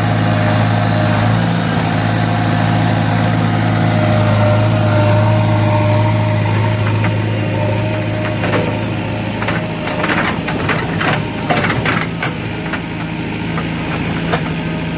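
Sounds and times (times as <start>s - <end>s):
diesel engine running: 4.1s - 14.9s
short knocks and clatter: 4.8s - 14.9s.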